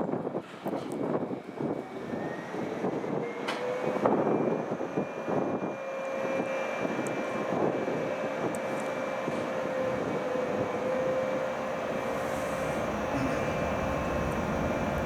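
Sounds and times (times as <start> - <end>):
train wheels rumbling on rails: 0.0 - 15.0
thin steady whine: 11.3 - 15.0.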